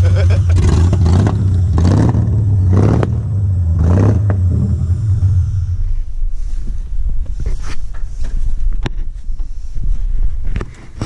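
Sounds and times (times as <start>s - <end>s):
car engine droning: 0.0s - 9.7s.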